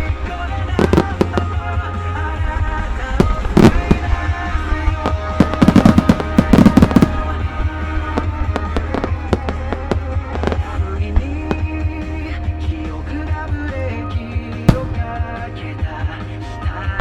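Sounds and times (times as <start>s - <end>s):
music soundtrack: 0.0s - 17.0s
fireworks bangs: 0.1s - 2.1s, 3.0s - 11.8s, 14.7s - 15.7s.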